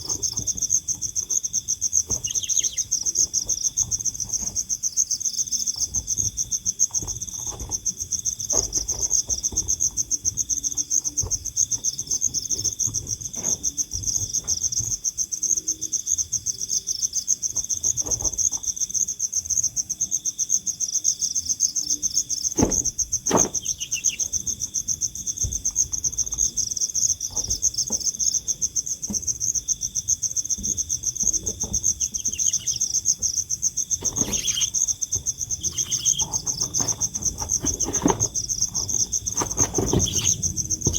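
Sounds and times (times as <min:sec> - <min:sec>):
insects trilling: 0:00.0 - 0:40.9
short knocks: 0:22.5 - 0:40.9.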